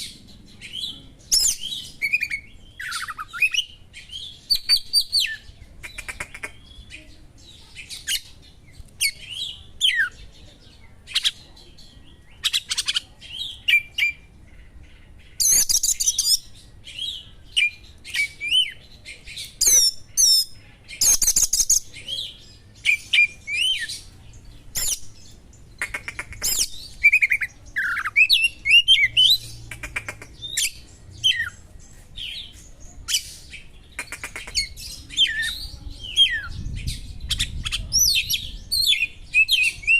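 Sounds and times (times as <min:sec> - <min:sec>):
bird singing chirps and whistles: 0:00.0 - 0:05.4, 0:19.4 - 0:24.1, 0:26.5 - 0:29.4.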